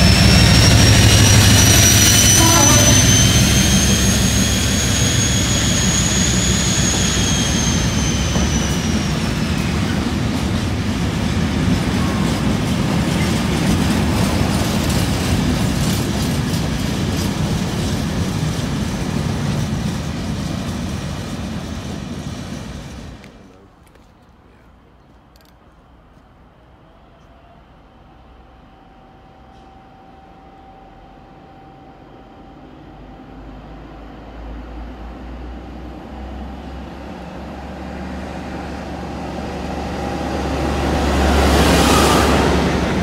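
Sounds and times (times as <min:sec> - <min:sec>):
high whine: 0:00.0 - 0:16.3
freight wagons rumbling on rails: 0:00.0 - 0:25.0, 0:32.5 - 0:43.0
diesel locomotive engine: 0:00.0 - 0:43.0.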